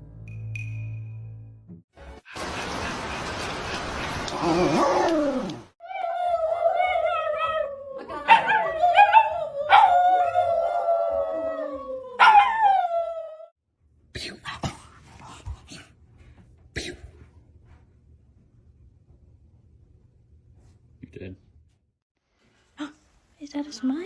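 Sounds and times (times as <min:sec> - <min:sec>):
dog howling: 0:04.4 - 0:13.5.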